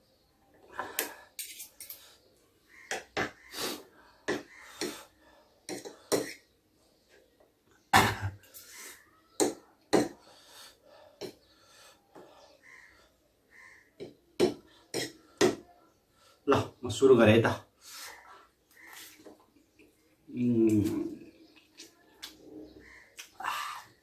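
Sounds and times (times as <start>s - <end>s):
utensils clinking against a dish: 1.4s - 2.0s.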